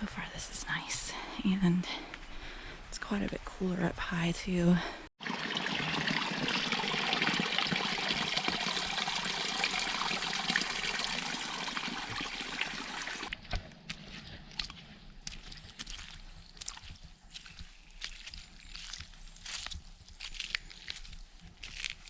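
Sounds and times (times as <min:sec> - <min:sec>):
water rushing: 0:05.2 - 0:13.3.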